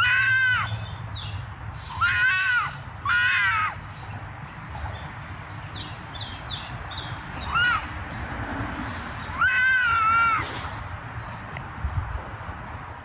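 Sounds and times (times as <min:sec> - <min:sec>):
animal calling loudly: 0:00.0 - 0:00.8, 0:01.8 - 0:03.8, 0:07.4 - 0:08.0, 0:09.3 - 0:10.6.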